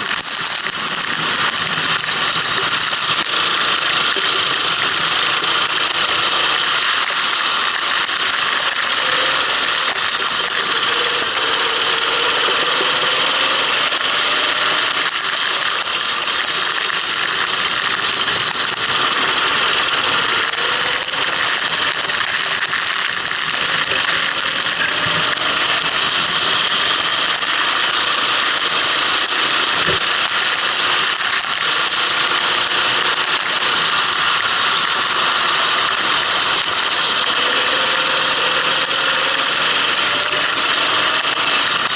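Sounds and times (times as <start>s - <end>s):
kart engine running: 0.0s - 41.9s
steady loud hiss: 0.0s - 41.9s.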